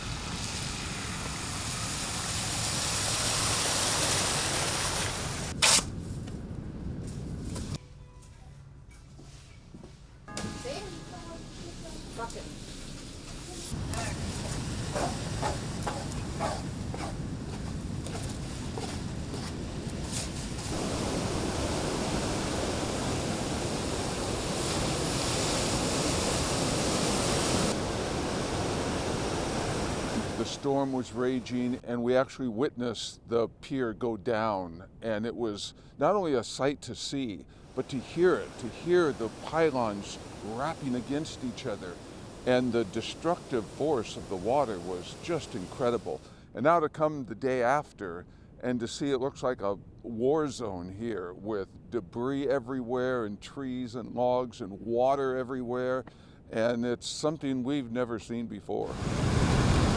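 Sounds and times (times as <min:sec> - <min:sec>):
ocean surf washing in: 0:00.0 - 0:05.6, 0:10.3 - 0:31.8, 0:37.6 - 0:46.3, 0:58.8 - 0:59.9
short loud hiss: 0:05.0 - 0:06.0
rushing noise: 0:20.1 - 0:31.8, 0:37.7 - 0:46.2.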